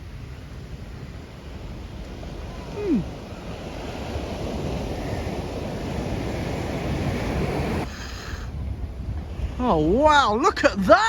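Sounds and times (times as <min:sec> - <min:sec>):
rough sea surf: 0:00.0 - 0:11.0
wind buffeting microphone: 0:00.0 - 0:11.0.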